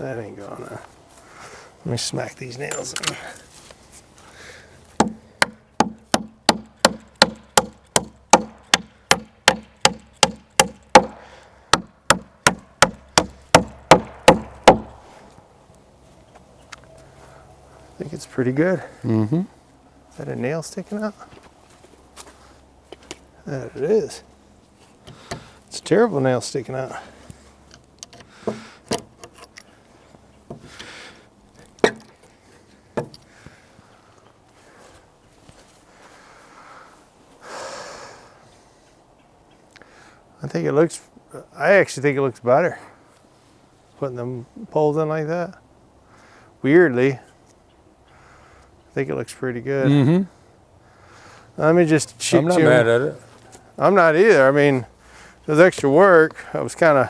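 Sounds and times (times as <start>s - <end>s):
hammer driving nails into wood: 5.0s - 15.0s.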